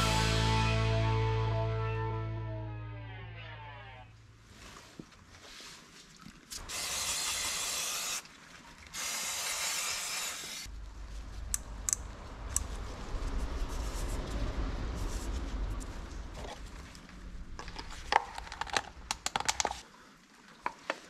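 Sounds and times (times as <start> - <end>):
low rumble: 0.0 - 3.5, 10.7 - 19.3
pressurised spraying hiss: 6.6 - 8.2.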